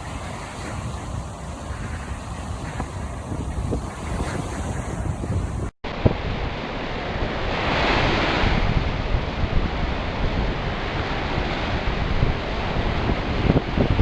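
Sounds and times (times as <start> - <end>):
waves breaking on shore: 0.0 - 14.0
wind buffeting microphone: 0.0 - 14.0.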